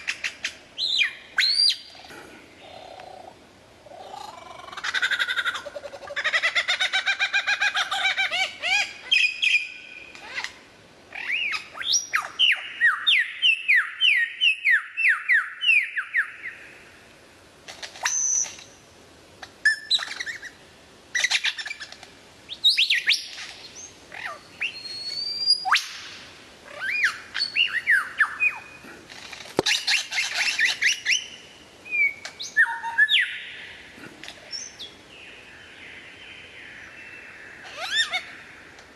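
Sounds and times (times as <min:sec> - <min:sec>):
birds chirping: 0:26.7 - 0:38.8
bird squawks: 0:37.5 - 0:38.5.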